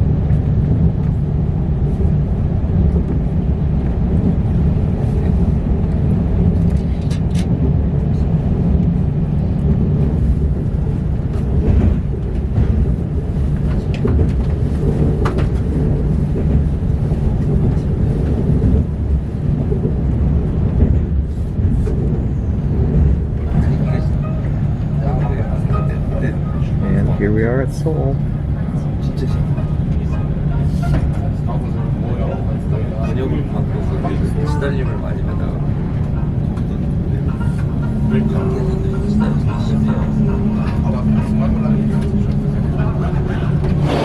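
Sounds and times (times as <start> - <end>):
train rumbling: 0.0 - 44.0.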